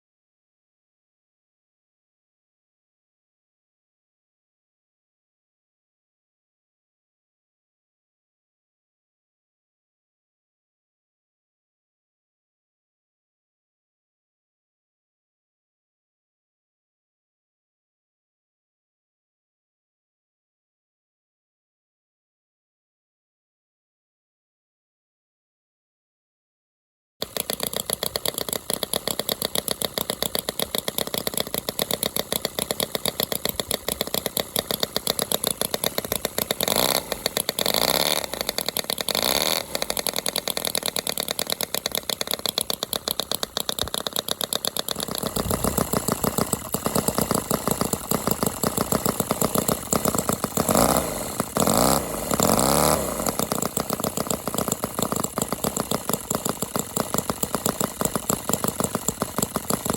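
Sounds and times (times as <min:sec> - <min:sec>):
model engine running: 0:27.2 - 0:59.9.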